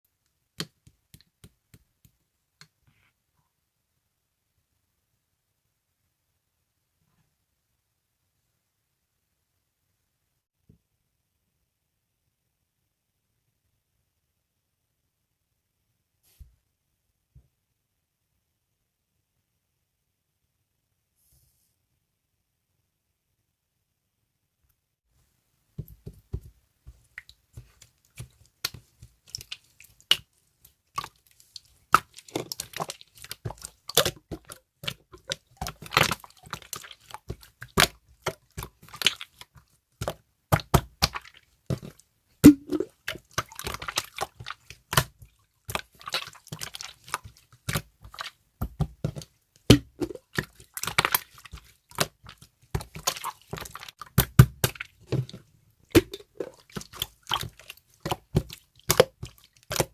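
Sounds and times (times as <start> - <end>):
slime squishing and popping: 30.9 - 59.9.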